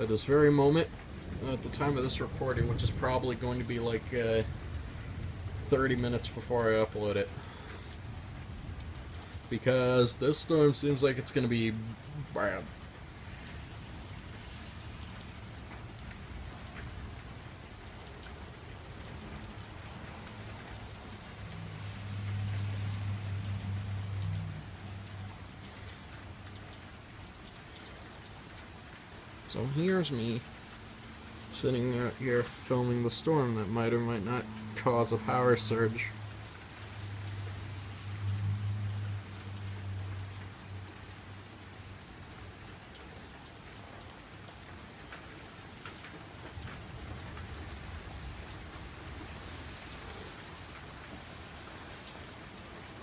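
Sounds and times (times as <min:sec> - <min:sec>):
rain pattering: 0:00.0 - 0:53.0
low thunder rumble: 0:00.8 - 0:09.6.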